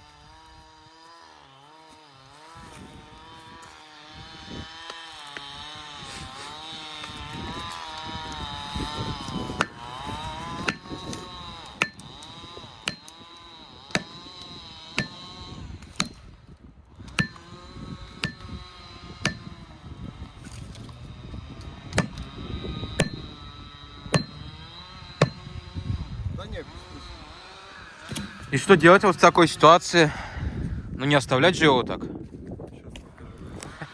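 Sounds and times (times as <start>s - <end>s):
chainsaw idling: 0.3s - 20.4s, 21.0s - 29.7s
hammer blows on felling wedge: 2.6s - 16.4s, 17.0s - 29.4s.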